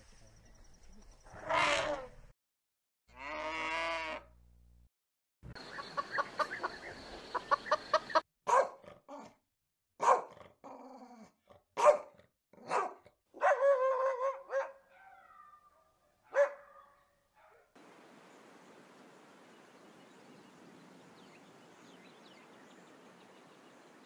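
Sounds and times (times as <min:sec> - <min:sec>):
dog barking and yelping: 0:08.5 - 0:08.8, 0:10.0 - 0:10.3, 0:11.8 - 0:17.6.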